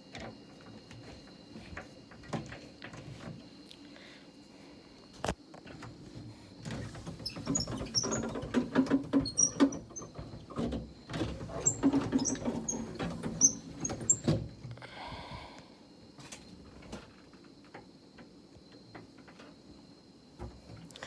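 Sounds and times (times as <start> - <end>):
clicks and knocks in door: 6.6 - 14.7.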